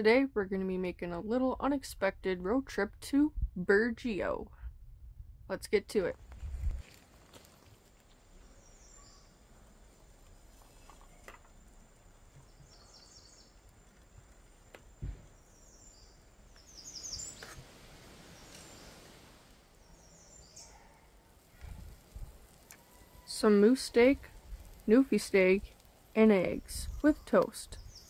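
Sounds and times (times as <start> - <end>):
faint outdoor background: 0.0 - 28.0
birds chirping: 8.2 - 28.0
dull thump: 15.0 - 15.4.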